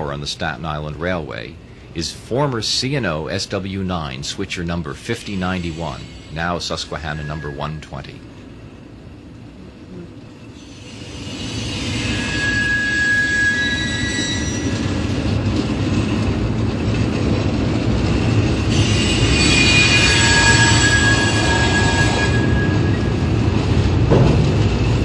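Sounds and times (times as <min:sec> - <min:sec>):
train rumbling on track: 0:00.0 - 0:25.0
wheels squealing on rails: 0:05.0 - 0:08.3, 0:10.4 - 0:25.0.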